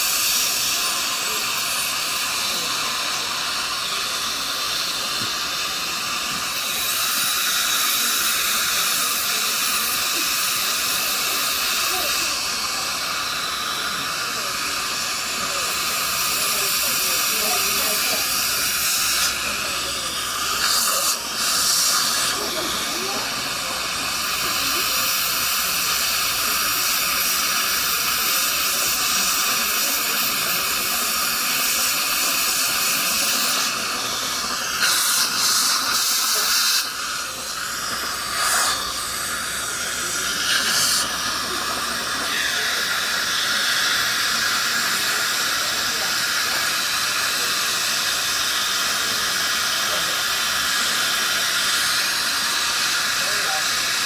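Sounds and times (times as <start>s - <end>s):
dental suction hiss: 0.0s - 54.0s
bursts of air: 15.8s - 45.5s.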